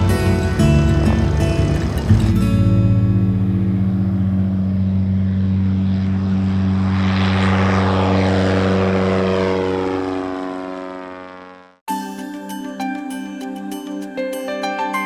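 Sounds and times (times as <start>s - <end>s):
propeller airplane flying past: 0.0s - 11.8s.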